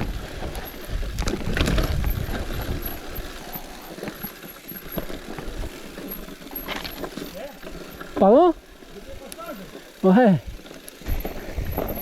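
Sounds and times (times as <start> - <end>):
wind on microphone: 0.0 - 3.3
bicycle road noise rumbling: 0.0 - 12.0.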